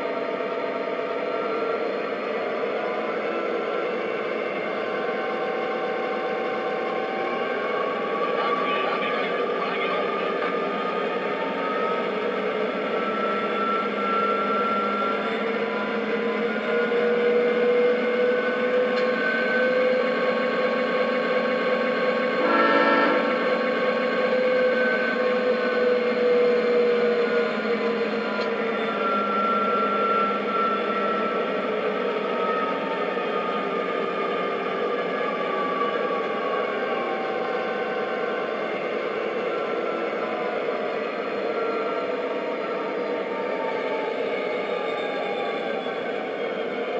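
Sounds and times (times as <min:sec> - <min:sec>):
model train diesel engine hum: 0:00.0 - 0:46.9
train horn blast: 0:22.3 - 0:23.6.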